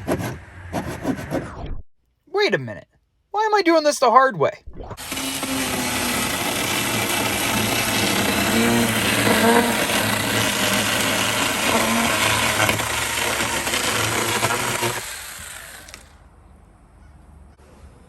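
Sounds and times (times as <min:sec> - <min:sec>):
chainsaw running and cutting: 0:05.0 - 0:16.2.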